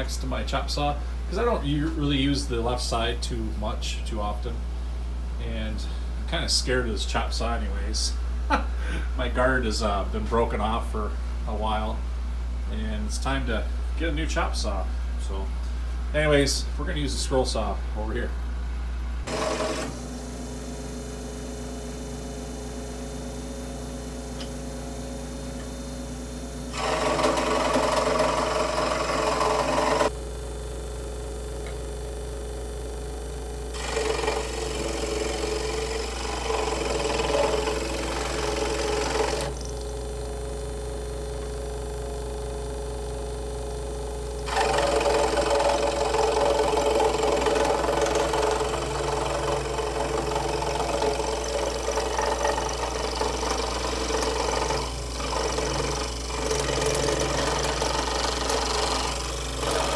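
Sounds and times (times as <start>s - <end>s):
scroll saw running: 19.2s - 30.2s, 33.7s - 40.2s, 44.4s - 59.9s
saw blade cutting wood: 19.3s - 20.0s, 26.7s - 30.1s, 33.7s - 39.7s, 44.5s - 59.9s.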